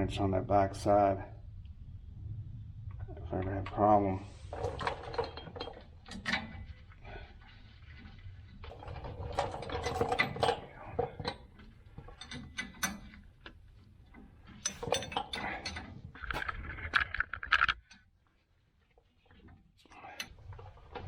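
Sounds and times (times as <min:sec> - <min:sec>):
metal tools clinking: 0:14.5 - 0:17.8.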